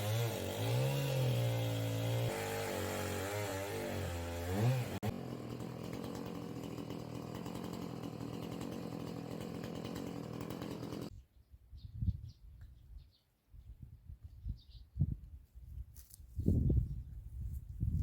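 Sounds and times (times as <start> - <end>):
chainsaw engine revving: 0.0 - 11.1.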